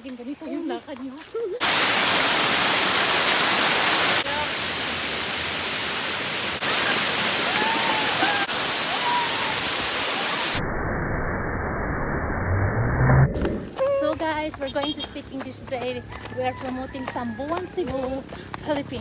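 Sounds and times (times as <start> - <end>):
waterfall rushing: 1.6 - 10.6.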